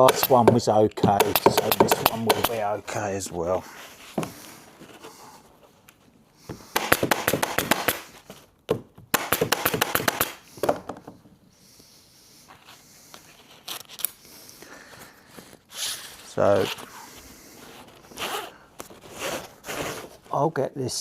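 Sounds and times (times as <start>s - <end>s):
elastic webbing rasping crackles: 15.2s - 20.4s.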